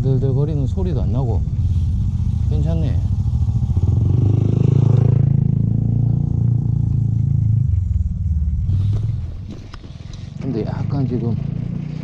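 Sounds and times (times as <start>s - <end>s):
low rumble of wind: 0.0s - 12.0s.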